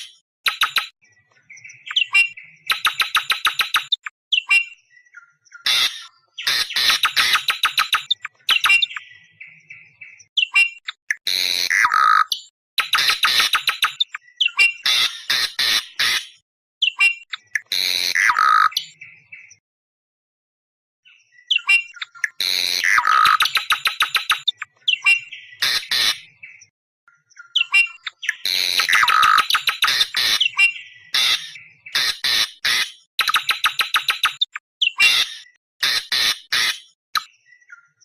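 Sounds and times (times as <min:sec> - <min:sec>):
bird screeching calls: 0:05.6 - 0:09.0, 0:14.4 - 0:18.9, 0:21.5 - 0:26.3, 0:27.6 - 0:33.6, 0:34.4 - 0:37.0.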